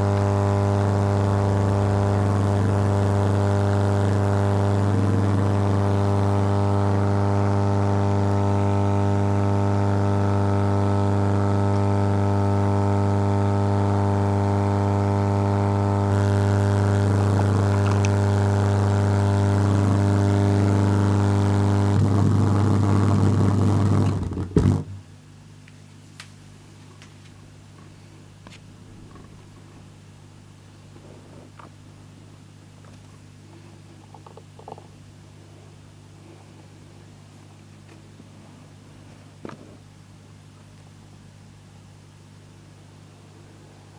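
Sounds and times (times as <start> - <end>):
electrical hum: 0.0 - 43.9
sharp electrical pops: 14.6 - 25.1.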